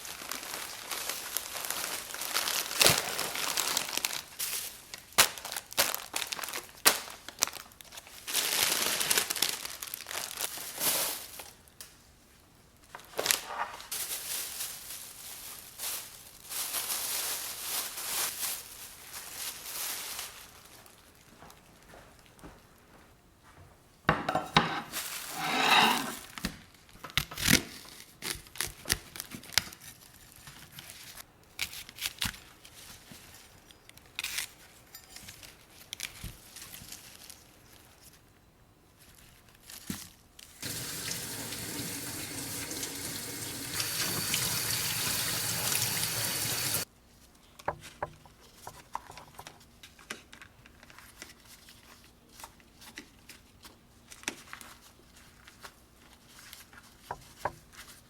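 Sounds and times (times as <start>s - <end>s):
kitchen tap running: 40.6s - 46.8s.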